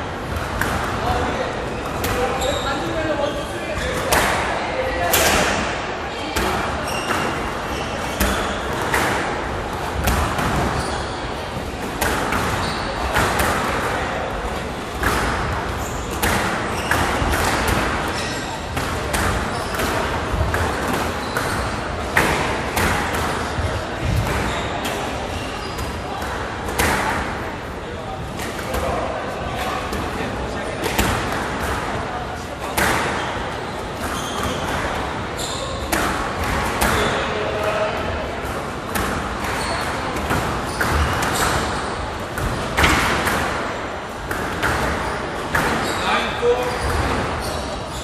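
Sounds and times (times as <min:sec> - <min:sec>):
squash ball hitting rackets and walls: 0:00.1 - 0:48.0
shoes squeaking on court: 0:01.0 - 0:04.1, 0:06.8 - 0:09.3, 0:10.0 - 0:13.8, 0:15.7 - 0:22.3, 0:23.4 - 0:26.1, 0:34.0 - 0:37.3, 0:39.4 - 0:42.5, 0:44.3 - 0:48.0
squash ball knocks: 0:15.0 - 0:24.5.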